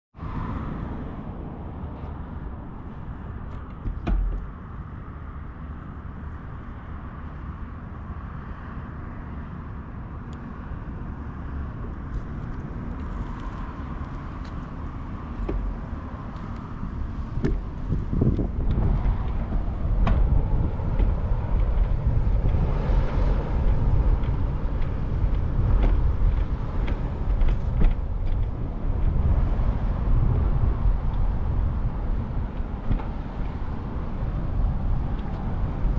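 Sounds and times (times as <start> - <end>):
wind rumble: 0.2 - 35.9.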